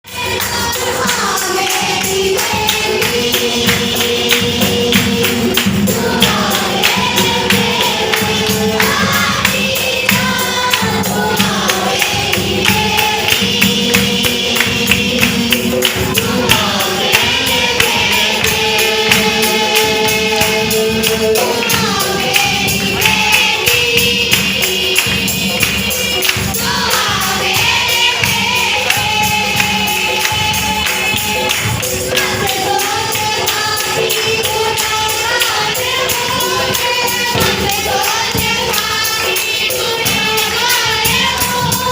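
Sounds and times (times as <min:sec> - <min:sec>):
tambourine beat: 0:00.0 - 0:41.9
group singing worship song: 0:00.1 - 0:41.9.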